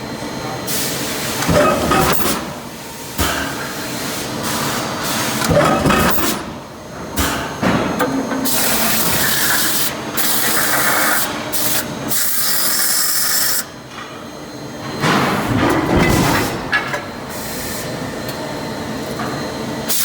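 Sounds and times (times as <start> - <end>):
machine hissing: 8.4 - 13.6.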